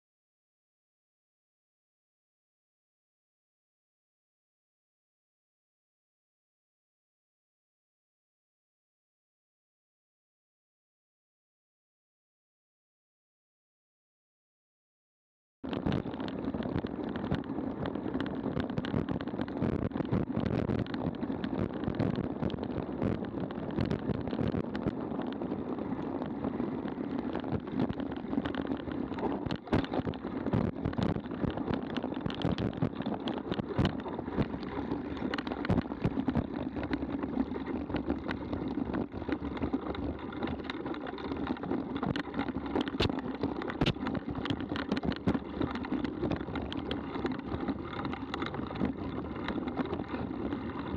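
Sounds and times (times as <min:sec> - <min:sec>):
bike rattling over rough ground: 0:15.6 - 0:50.9
bike tyres rumbling on dirt: 0:15.7 - 0:50.9
wind on microphone: 0:15.7 - 0:50.9.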